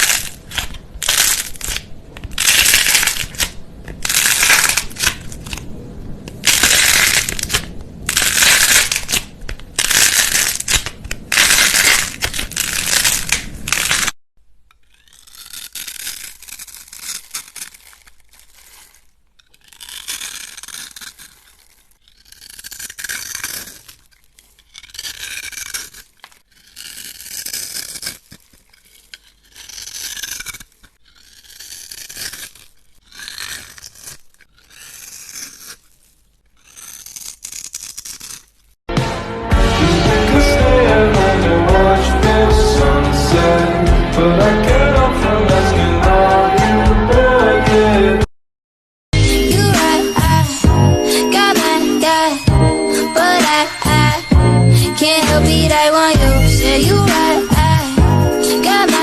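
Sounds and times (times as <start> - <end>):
crisp crunching: 0.0 - 38.8, 49.2 - 59.0.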